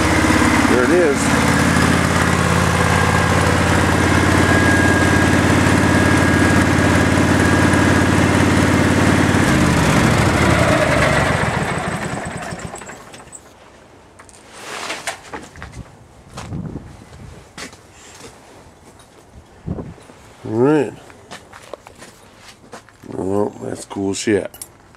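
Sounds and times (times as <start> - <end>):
welding machine engine running: 0.0 - 13.2.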